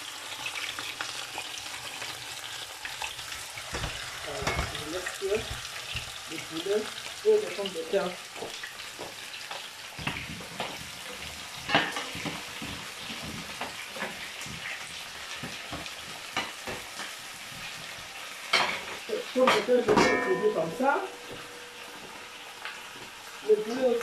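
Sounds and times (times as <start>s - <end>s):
chicken sizzling in oil: 0.0s - 24.0s
utensil knocking pans: 3.7s - 6.2s, 8.4s - 17.7s, 18.5s - 22.2s.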